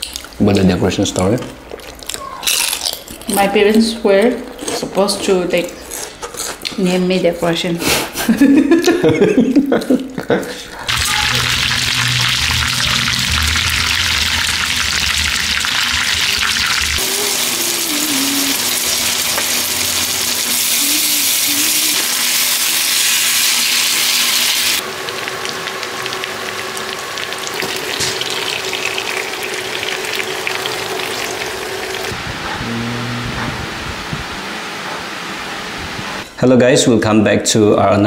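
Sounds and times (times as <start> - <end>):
food sizzling in hot oil: 10.9 - 32.1.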